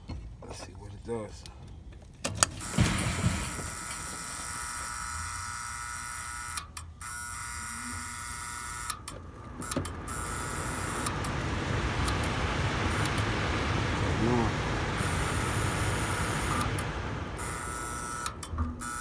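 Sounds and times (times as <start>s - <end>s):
air handler motor hum: 2.3s - 19.0s
rush of air: 9.2s - 19.0s.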